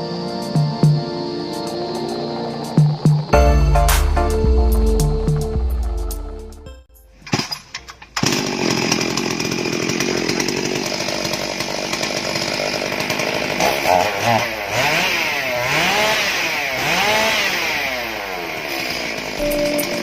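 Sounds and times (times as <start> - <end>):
chainsaw engine revving: 7.2 - 20.0.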